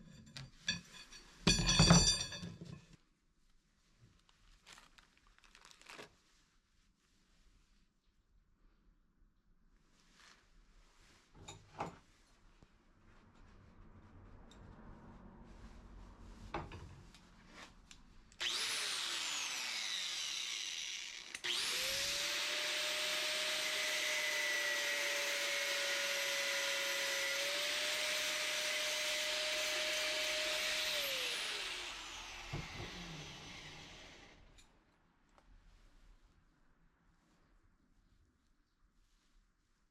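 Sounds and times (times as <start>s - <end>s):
power tool motor running: 18.4s - 34.4s.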